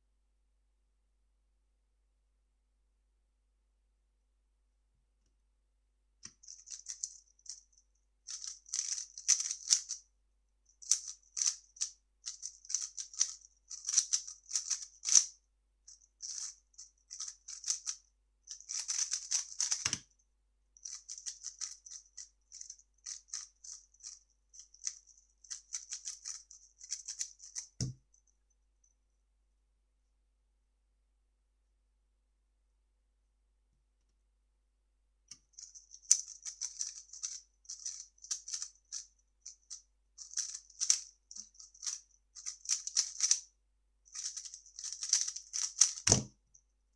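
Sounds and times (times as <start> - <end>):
puzzle cube clicking and rattling: 6.3 - 10.0, 10.8 - 15.3, 15.9 - 20.0, 20.8 - 28.0, 35.4 - 43.4, 44.1 - 46.3.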